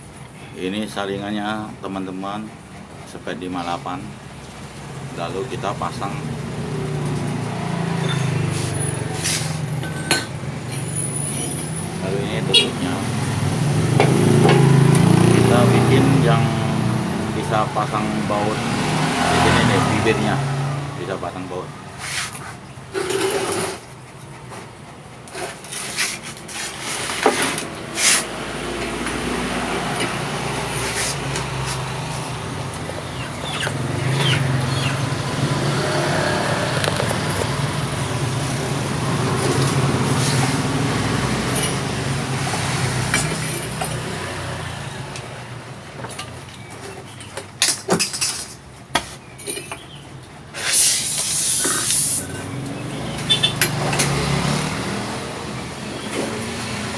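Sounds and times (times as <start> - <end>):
sharp knocks and clicks: 13.9 - 15.1.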